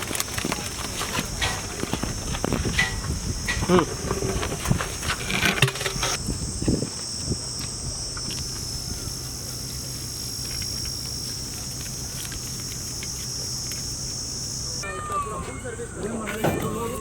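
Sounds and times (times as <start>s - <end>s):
knocks and clatter: 0.0s - 6.2s.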